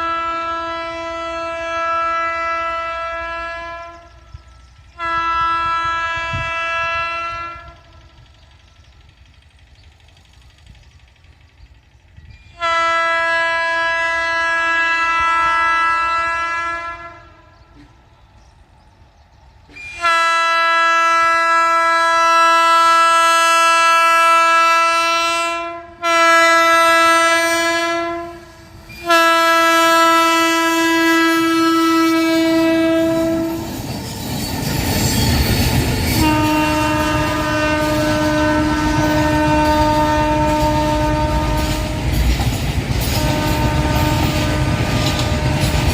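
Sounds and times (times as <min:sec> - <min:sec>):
locomotive air horn blasts: 0:00.0 - 0:08.1, 0:12.5 - 0:17.7, 0:19.8 - 0:33.8, 0:36.0 - 0:42.3, 0:43.0 - 0:45.9
freight train rumble and wheel clatter: 0:00.0 - 0:45.9.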